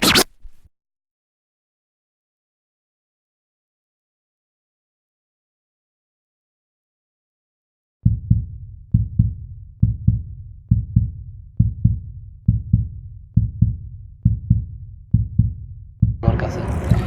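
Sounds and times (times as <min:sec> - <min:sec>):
heartbeat double thump: 0:08.1 - 0:17.0.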